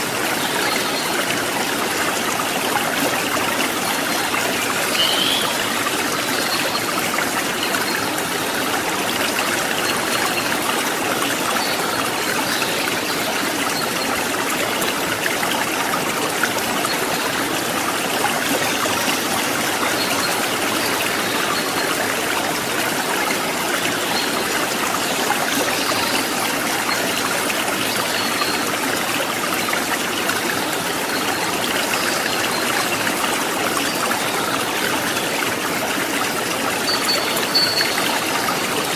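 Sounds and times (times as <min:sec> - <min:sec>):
stream water babbling: 0:00.0 - 0:38.9.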